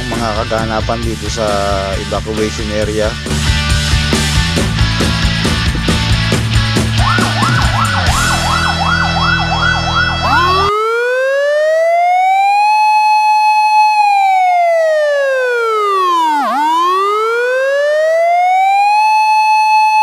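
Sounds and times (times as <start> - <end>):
electronic siren yelping and wailing: 6.9 - 20.0.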